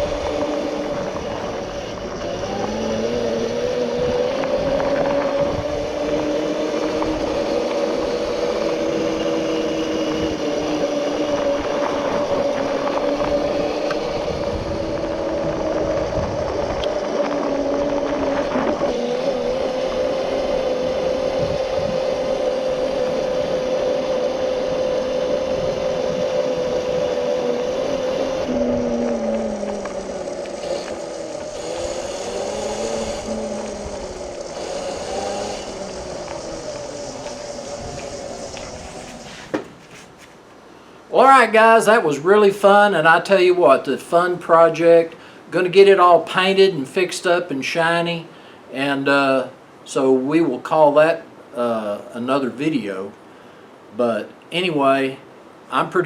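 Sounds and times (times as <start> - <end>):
electric motor whine: 0.0 - 40.5.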